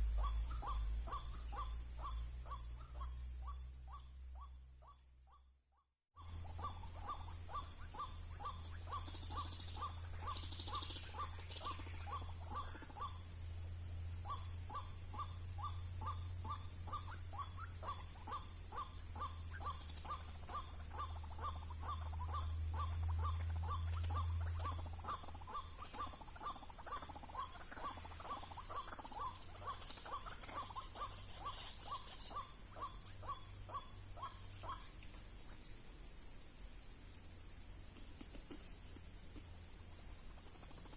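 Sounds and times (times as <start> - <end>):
low hum: 0.0 - 5.3
high insect drone: 0.0 - 5.4, 6.2 - 40.9.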